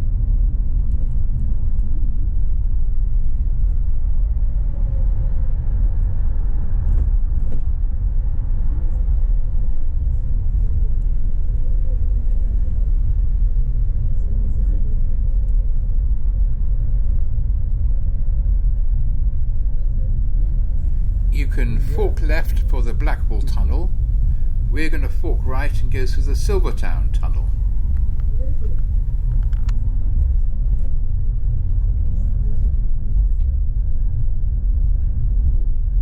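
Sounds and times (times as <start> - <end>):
bus rumbling from inside: 20.4 - 29.8
faint steady hum: 20.4 - 29.8.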